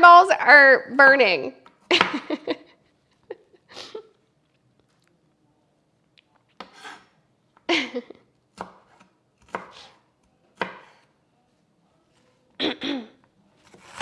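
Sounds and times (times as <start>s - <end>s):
knife chopping on cutting board: 6.6s - 7.1s, 8.6s - 10.0s, 10.6s - 11.1s, 13.6s - 14.0s.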